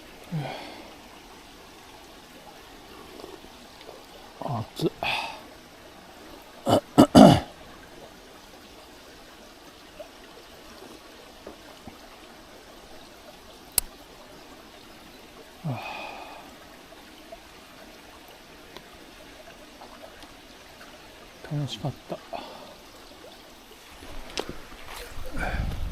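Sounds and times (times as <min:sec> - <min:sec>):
stream flowing: 0:00.0 - 0:25.9.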